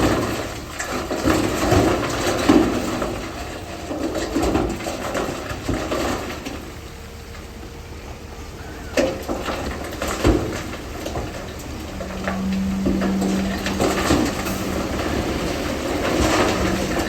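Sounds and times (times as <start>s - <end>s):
bulldozer metallic clanks: 0.0s - 17.0s
engine hum: 0.0s - 17.0s.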